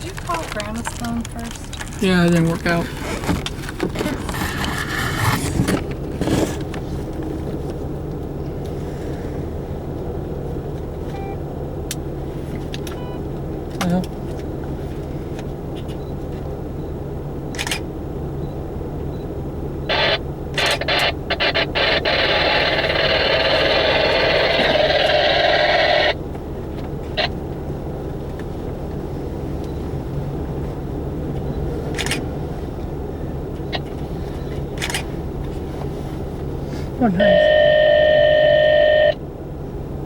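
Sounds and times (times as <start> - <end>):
radio static crackling: 0.0 - 6.7, 19.9 - 26.2
scattered clicks: 20.5 - 25.2, 31.9 - 32.2, 34.8 - 35.1.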